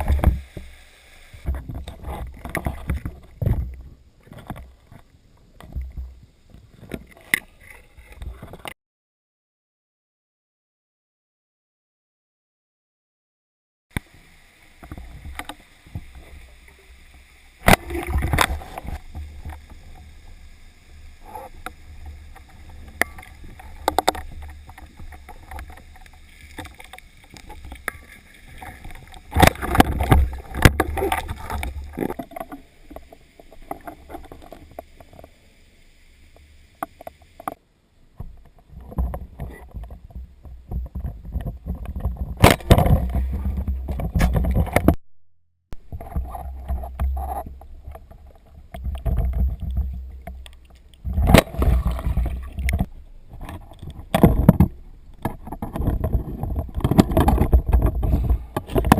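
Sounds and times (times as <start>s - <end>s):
water sloshing and churning: 0.0s - 8.7s, 14.0s - 35.5s, 45.8s - 58.9s
knocks and splashes: 17.6s - 20.1s, 21.2s - 35.3s, 38.2s - 45.0s, 45.8s - 58.9s.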